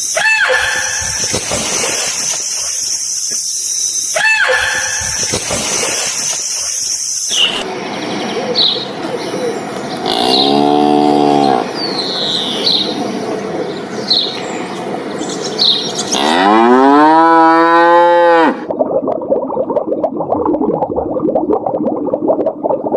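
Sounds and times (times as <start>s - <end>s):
small birds chirping: 2.3s - 16.5s
cow mooing: 10.0s - 11.7s, 16.1s - 18.6s.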